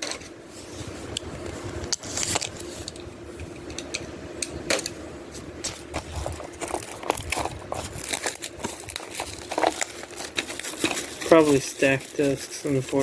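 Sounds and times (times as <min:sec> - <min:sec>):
faint steady hum: 0:00.0 - 0:13.0
plastic wrap crinkling: 0:05.6 - 0:13.0.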